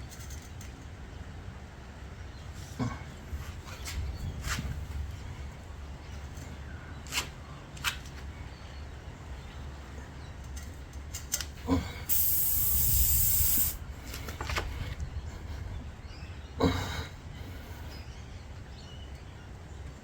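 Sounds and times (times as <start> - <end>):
air hissing out of a tyre: 12.1 - 13.8.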